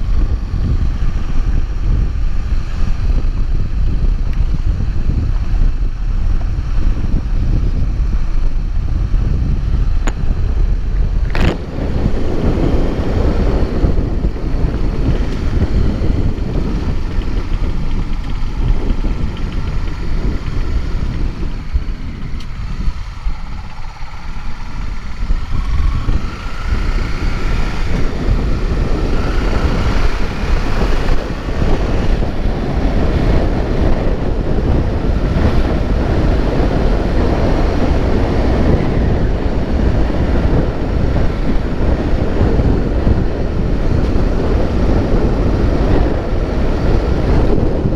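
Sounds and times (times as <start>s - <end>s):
low vehicle rumble: 0.0s - 47.9s
wind rushing over microphone: 0.0s - 47.9s.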